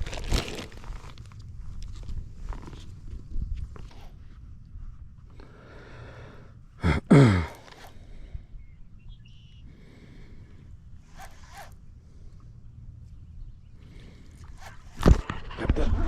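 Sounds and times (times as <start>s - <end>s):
person gasping or grunting: 6.8s - 8.0s.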